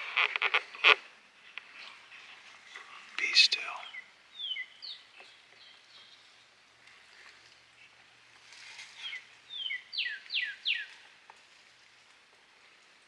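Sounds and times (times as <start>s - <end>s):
songbird singing: 3.2s - 6.2s, 9.0s - 10.9s.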